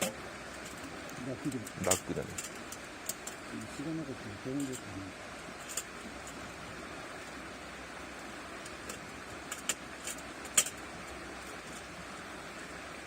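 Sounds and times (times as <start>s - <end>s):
river rushing: 0.0s - 13.0s
light clicks and knocks: 8.6s - 10.8s.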